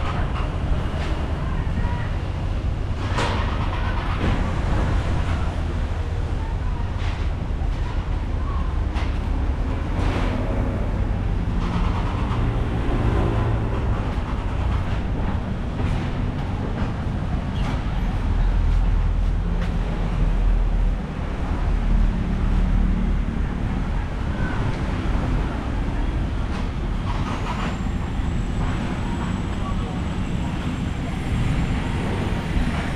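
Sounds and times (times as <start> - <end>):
low traffic rumble: 0.0 - 32.9
vehicles passing: 0.0 - 32.9.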